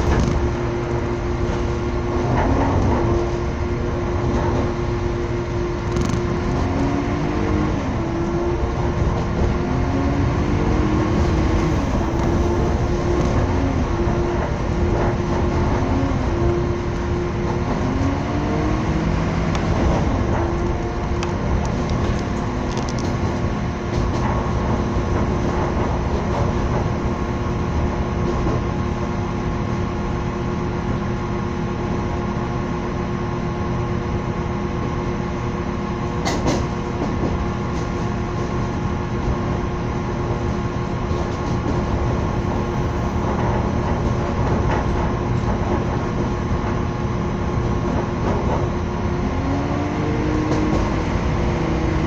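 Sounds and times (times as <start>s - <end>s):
rising hum: 0.0s - 29.0s
train rumble and rattle: 0.0s - 52.0s.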